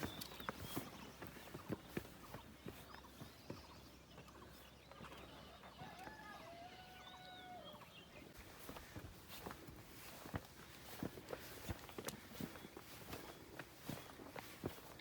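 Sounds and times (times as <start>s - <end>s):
footsteps scuffing on a trail: 0.0s - 4.4s, 8.3s - 15.0s.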